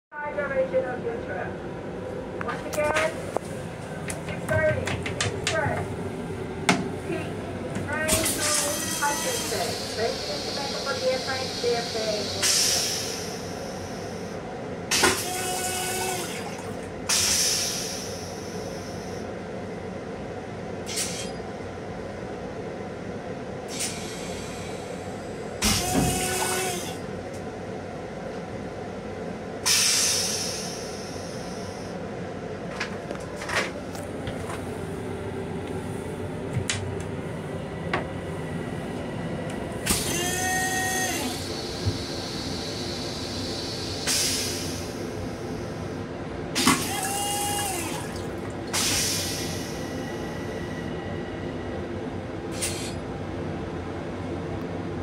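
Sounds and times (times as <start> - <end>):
electric train rumble: 0.1 - 55.0.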